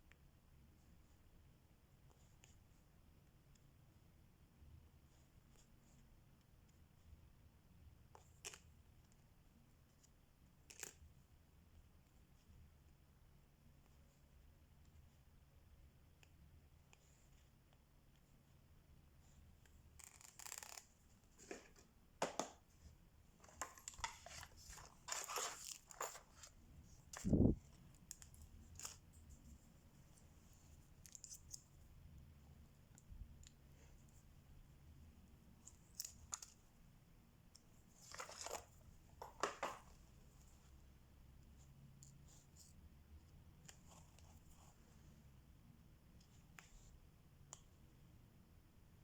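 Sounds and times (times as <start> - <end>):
faint low room hum: 0.0 - 49.0
crinkling rustle: 23.4 - 29.6.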